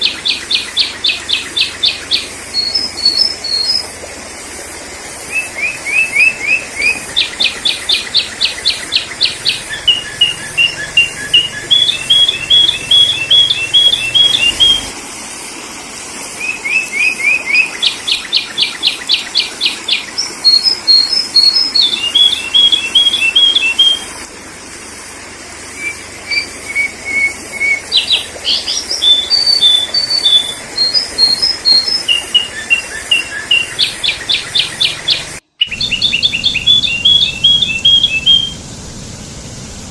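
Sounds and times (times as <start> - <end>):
bulbul chirps and trills: 5.4 - 14.9, 25.8 - 38.6.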